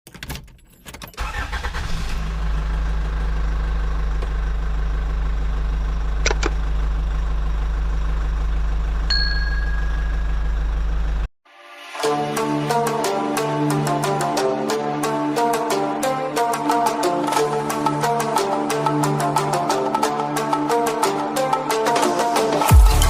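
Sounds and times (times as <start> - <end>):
car engine starting and idling: 1.0 - 11.3
thin high tone: 9.1 - 10.6.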